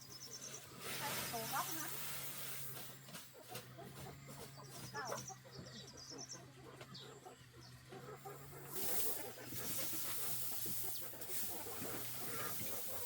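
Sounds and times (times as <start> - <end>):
poultry clucking: 2.7 - 13.0.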